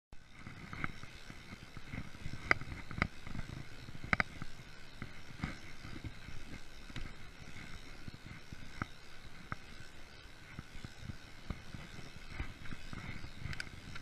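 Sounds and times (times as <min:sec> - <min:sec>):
bike tyres rumbling on trail: 0:00.2 - 0:14.0
metallic bike clicks and rattles: 0:00.2 - 0:14.0.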